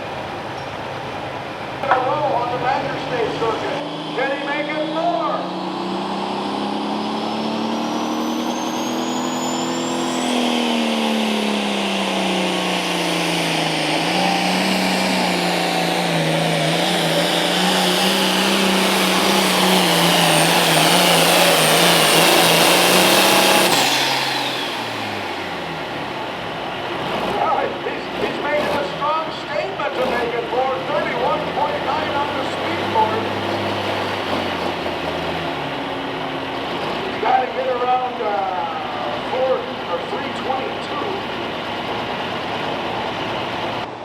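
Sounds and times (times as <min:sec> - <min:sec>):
diesel tractor engine at full throttle: 0:00.0 - 0:44.0
high turbo whistle: 0:05.5 - 0:26.6.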